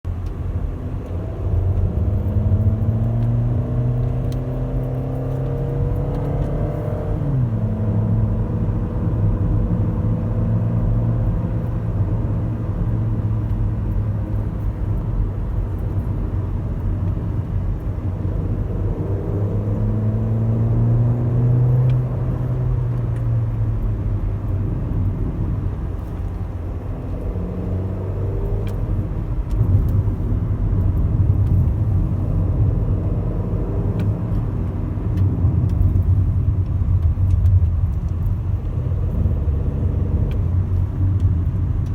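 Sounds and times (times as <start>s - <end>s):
car engine droning while driving: 0.1s - 41.9s.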